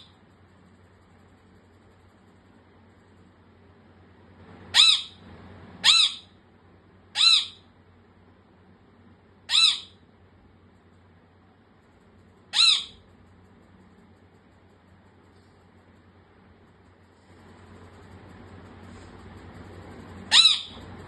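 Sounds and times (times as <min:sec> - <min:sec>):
pet bird squawking: 0:04.7 - 0:05.2, 0:05.8 - 0:06.4, 0:07.1 - 0:07.6, 0:09.5 - 0:10.0, 0:12.5 - 0:13.1, 0:20.2 - 0:20.9.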